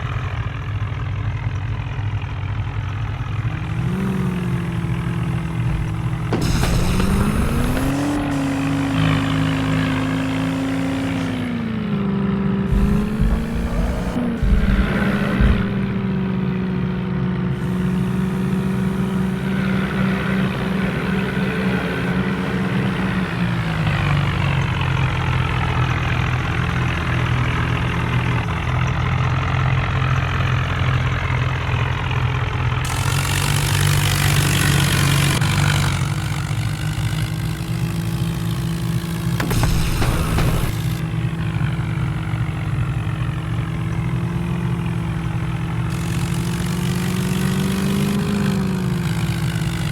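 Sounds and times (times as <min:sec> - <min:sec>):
vehicle engine running: 0:00.0 - 0:49.9
hiss: 0:05.6 - 0:09.3, 0:12.7 - 0:16.1, 0:39.4 - 0:41.0.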